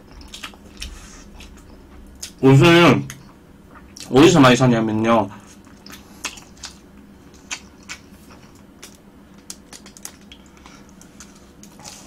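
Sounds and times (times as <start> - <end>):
low room hum: 0.0 - 12.0
mouth clicks and smacks chewing: 5.6 - 12.0.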